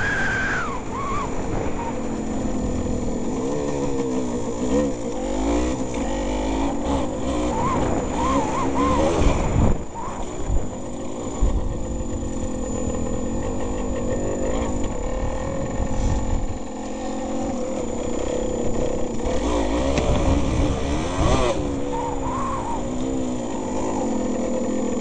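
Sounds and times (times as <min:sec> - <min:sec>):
wind rumbling on microphone: 0:00.0 - 0:05.2, 0:06.8 - 0:24.4
motorcycle engine revving: 0:00.0 - 0:25.0.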